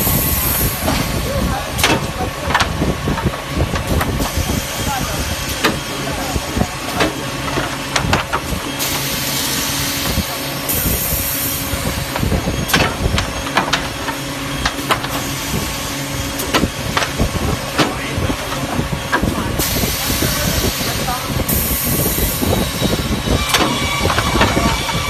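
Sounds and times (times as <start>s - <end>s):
machine knocks and clatter: 1.8s - 9.1s, 11.7s - 19.8s, 22.2s - 25.0s
compressed air hiss: 19.6s - 23.1s.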